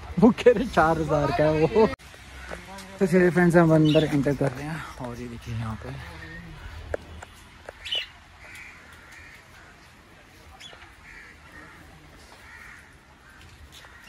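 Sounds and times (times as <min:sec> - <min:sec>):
harsh bird caws: 0:07.7 - 0:14.0.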